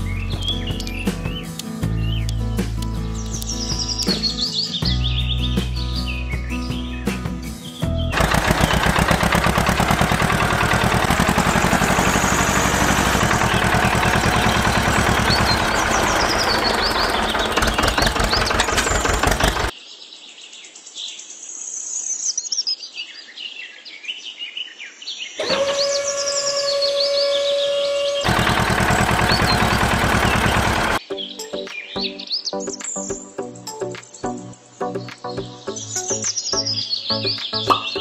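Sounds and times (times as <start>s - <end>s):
birds chirping: 0.0s - 19.7s, 25.6s - 31.0s, 34.9s - 38.0s
tractor engine chugging: 8.1s - 19.7s, 28.0s - 31.0s
motor whine: 8.2s - 19.7s, 25.4s - 31.0s.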